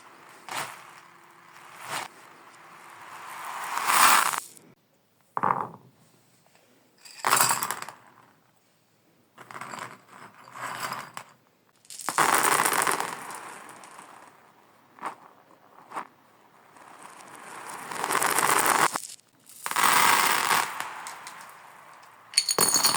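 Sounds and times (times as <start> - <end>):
marbles rattling along a track: 0.0 - 4.5, 11.8 - 14.4, 15.9 - 22.9.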